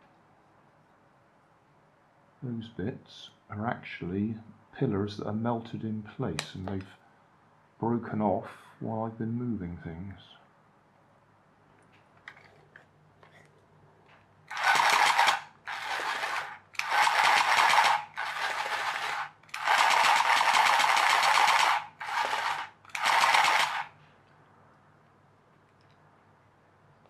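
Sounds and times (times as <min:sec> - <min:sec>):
small motor whirring: 0:14.5 - 0:23.9.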